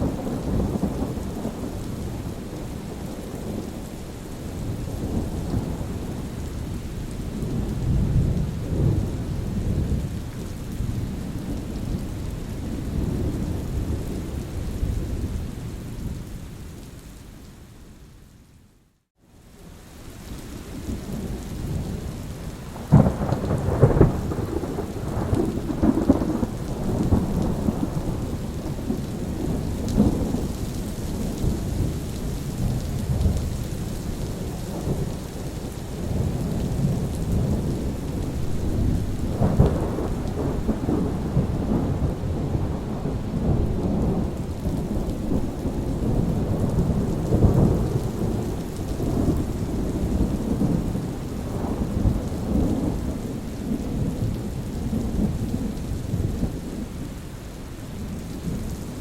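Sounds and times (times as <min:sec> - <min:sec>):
steady rain: 0:00.0 - 0:59.0
thunder cracking and rumbling: 0:21.2 - 0:56.8.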